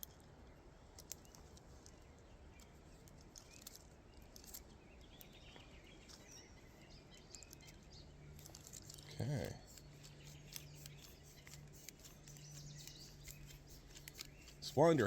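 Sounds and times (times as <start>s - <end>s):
faint bird chirps: 0.5s - 15.0s
antenna wire winding ticks: 8.4s - 15.0s.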